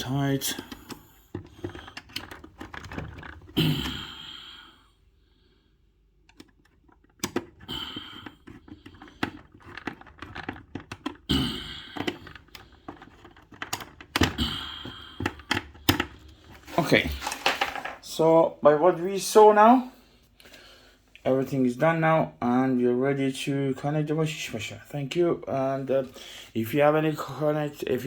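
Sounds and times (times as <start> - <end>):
small tools clicking and knocking: 0.5 - 3.6, 6.3 - 11.3, 11.9 - 18.0.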